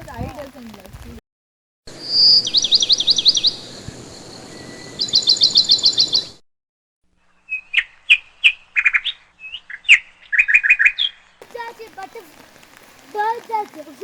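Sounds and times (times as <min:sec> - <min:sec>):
sharp bird chirps: 0:01.9 - 0:06.4, 0:07.2 - 0:11.4
songbirds trilling: 0:01.9 - 0:06.4, 0:07.2 - 0:14.0
faint hiss: 0:11.4 - 0:14.0.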